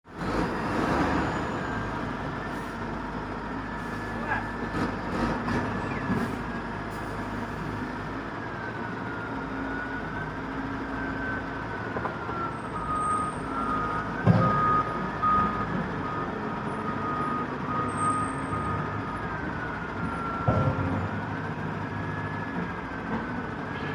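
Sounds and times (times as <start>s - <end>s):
dump truck engine running: 0.1s - 23.9s
reversing alarm beeping: 5.7s - 23.9s.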